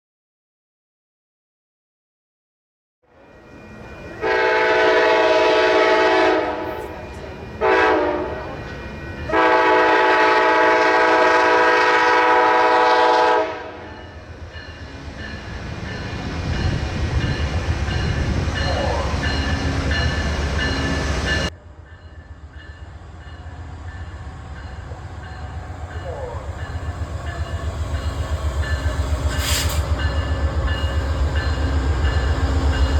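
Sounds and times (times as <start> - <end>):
low rumble of passing train: 3.1 - 32.9
locomotive air horn chord: 4.2 - 8.6, 9.3 - 14.1.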